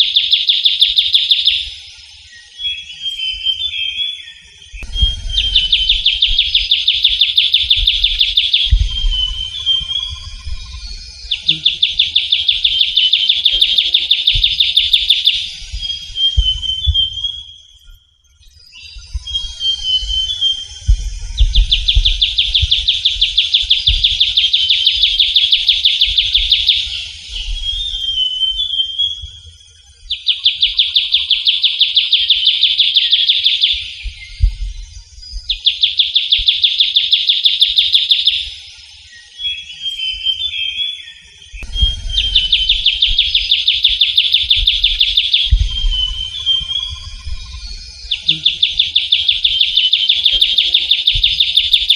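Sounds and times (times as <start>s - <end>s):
bird trilling and warbling: 4.8s - 17.6s, 41.6s - 51.9s.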